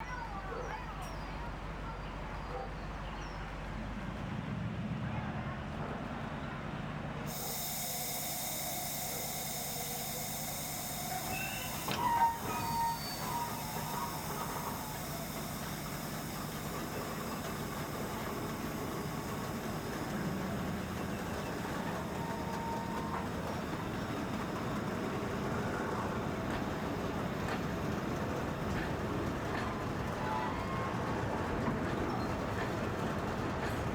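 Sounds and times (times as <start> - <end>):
train rumbling: 0.0 - 33.9
wheel or brake squeal: 9.9 - 17.6, 21.0 - 24.8.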